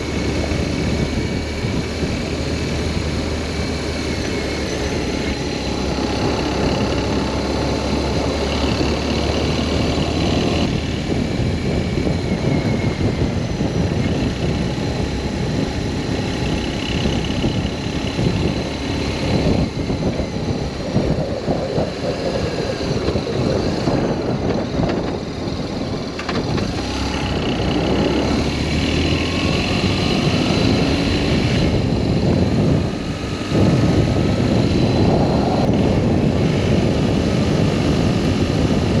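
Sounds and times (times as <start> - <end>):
motorcycle engine running: 0.0 - 39.0
wind rush: 0.0 - 39.0.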